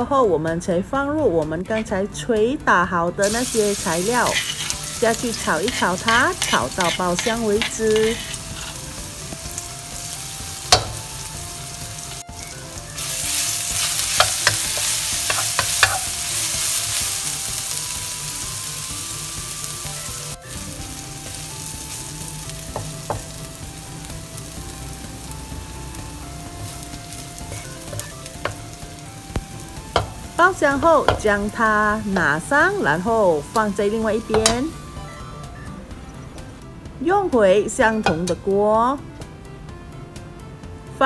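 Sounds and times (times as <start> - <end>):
wooden spatula stirring in wok: 3.2 - 18.4, 20.4 - 34.7
paste sizzling in hot oil: 3.2 - 35.4.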